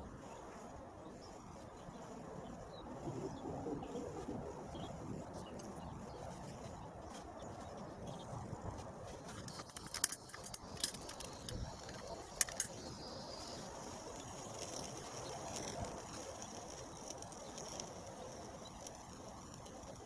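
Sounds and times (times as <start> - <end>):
faint steady hiss: 9.2 - 20.0
sharp metallic ticks: 9.3 - 20.0.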